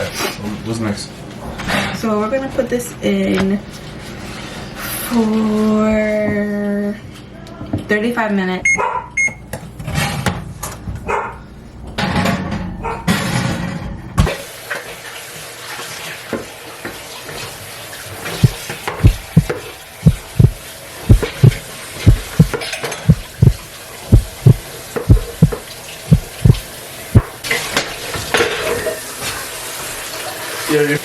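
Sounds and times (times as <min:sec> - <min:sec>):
water running from a tap: 0:14.4 - 0:31.0
low thumps: 0:18.4 - 0:26.6.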